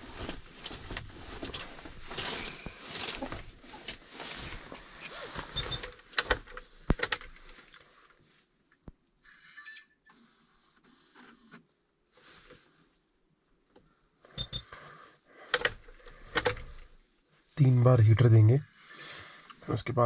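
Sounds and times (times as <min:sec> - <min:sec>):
clicks and knocks in vehicle cabin: 0:15.5 - 0:16.8.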